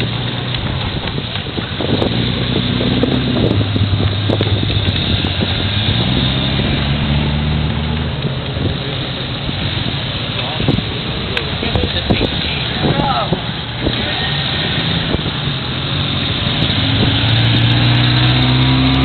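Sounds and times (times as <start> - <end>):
race car engines running: 0.0 - 19.0.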